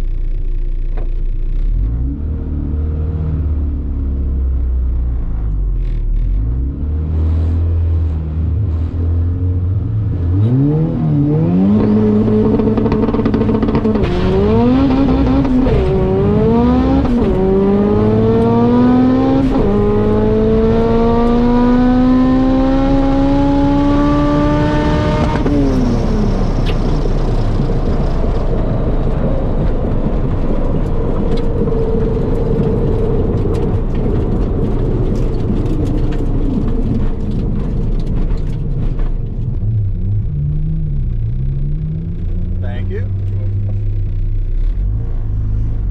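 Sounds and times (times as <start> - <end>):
car engine revving: 0.0 - 45.9
car rolling noise: 0.0 - 45.9.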